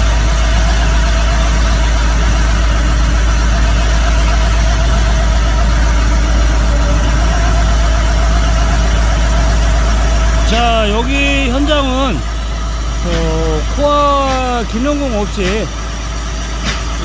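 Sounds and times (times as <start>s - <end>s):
diesel engine running: 0.0s - 17.0s
hydraulic drill coring rock: 0.0s - 17.0s.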